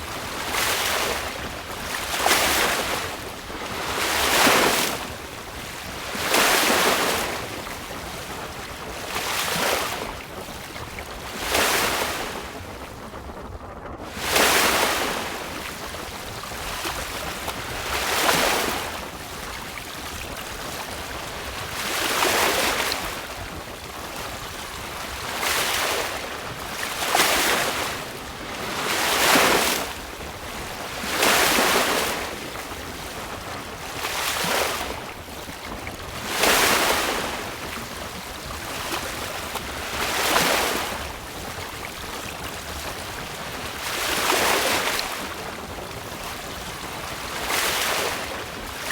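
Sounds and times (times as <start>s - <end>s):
sea water splashing on hull: 0.0s - 13.2s, 14.0s - 48.9s
wind: 0.0s - 48.9s.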